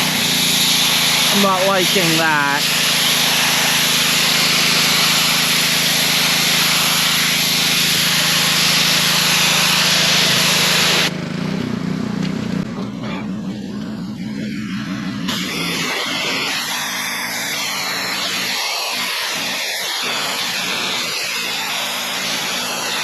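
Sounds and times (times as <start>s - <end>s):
water spray hissing: 0.0s - 11.1s
pressure washer engine running: 0.0s - 23.0s.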